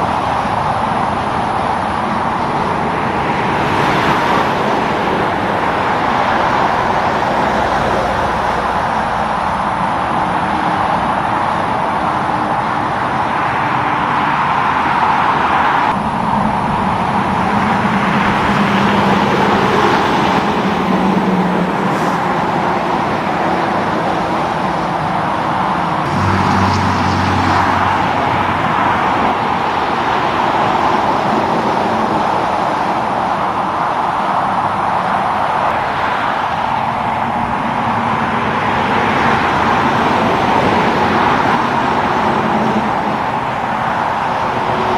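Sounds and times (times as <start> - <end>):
road traffic passing: 0.0 - 44.9.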